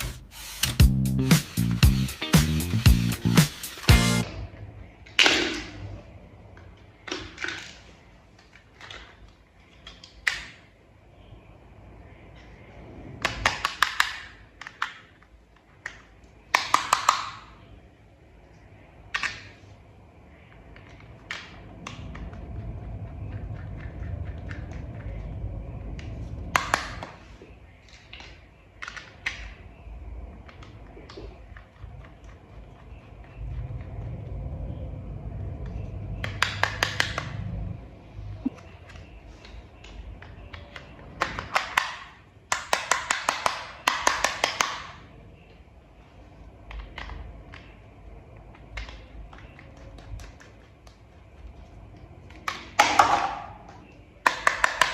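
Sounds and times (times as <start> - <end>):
plastic toy parts clicking: 13.2 - 17.5, 38.9 - 45.0, 53.7 - 54.9.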